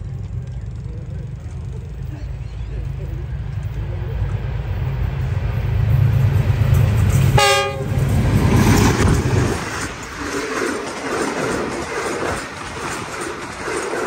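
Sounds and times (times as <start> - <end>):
locomotive engine drone: 0.0 - 14.0
wheels clattering on rails: 0.0 - 14.0
train horn blast: 7.2 - 8.2.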